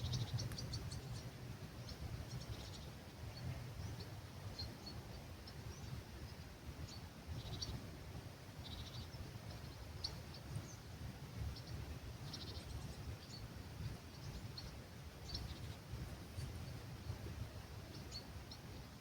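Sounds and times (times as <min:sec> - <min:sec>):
small birds chirping: 0:00.0 - 0:07.9, 0:08.5 - 0:19.0.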